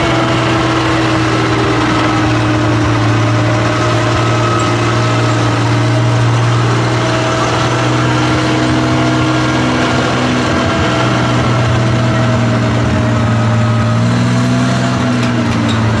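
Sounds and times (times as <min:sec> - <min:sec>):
tank engine idling: 0:00.0 - 0:16.0.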